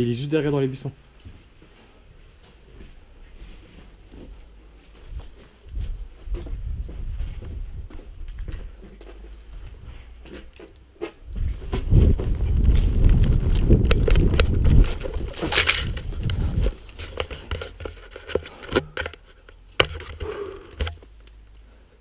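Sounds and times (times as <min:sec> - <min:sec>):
rustling and thumping: 0:03.6 - 0:21.2
sharp clicks and knocks: 0:13.4 - 0:21.4.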